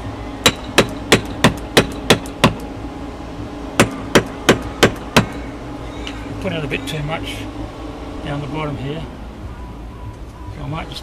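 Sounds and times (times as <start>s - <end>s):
mallet knocking caulking iron: 0.5s - 2.6s.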